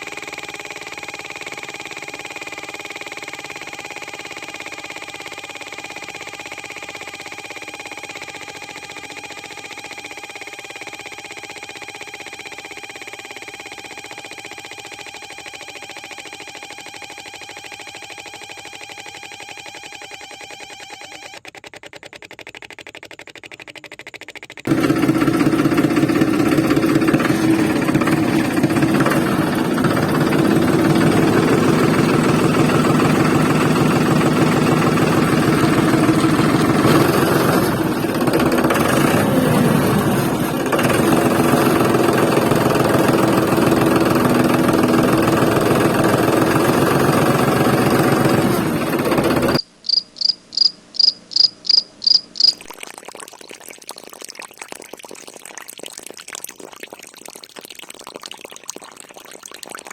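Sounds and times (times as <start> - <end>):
small motor buzzing: 0.0 - 50.0
short high chirps: 49.6 - 52.7.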